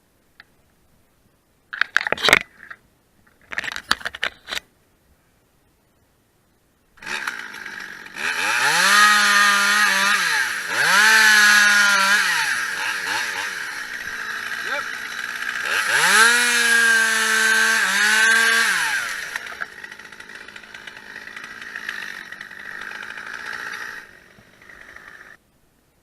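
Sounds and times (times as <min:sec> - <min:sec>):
chainsaw revving: 0:07.0 - 0:25.4.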